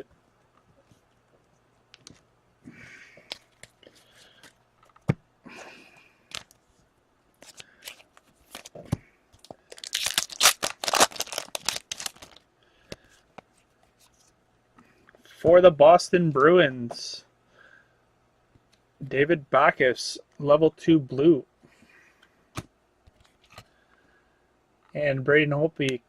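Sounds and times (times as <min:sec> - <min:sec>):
cards clicking and scraping: 0:07.4 - 0:14.3
wrapper tearing and crinkling: 0:09.7 - 0:12.4.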